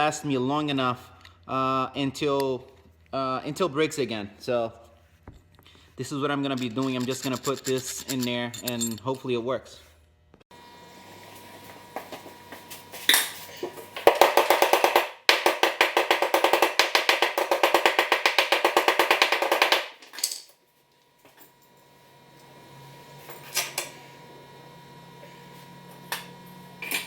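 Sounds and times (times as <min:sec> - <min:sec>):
metallic clicks of parts handled: 0:06.5 - 0:09.2.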